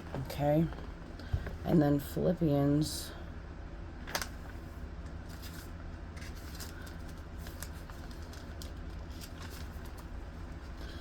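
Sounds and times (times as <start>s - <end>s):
steady low hum: 0.0s - 11.0s
pages rustling: 5.2s - 11.0s.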